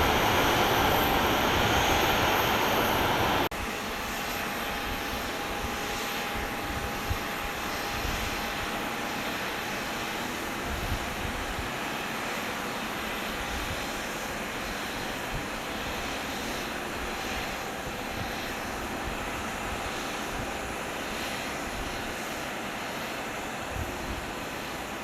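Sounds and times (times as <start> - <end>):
faint steady whine: 0.0 - 3.5
jet engines rushing: 0.0 - 3.5.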